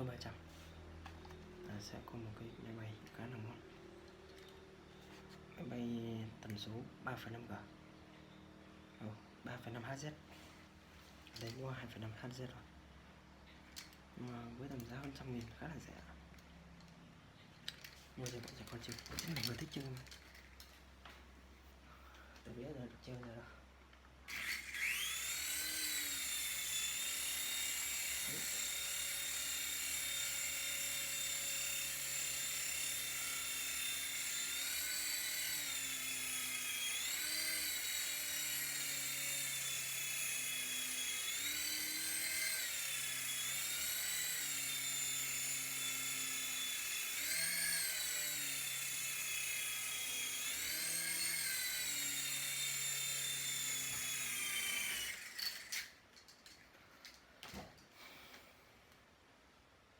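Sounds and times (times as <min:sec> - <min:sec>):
toy helicopter rotors whining: 0:17.6 - 0:20.7, 0:24.3 - 0:57.2.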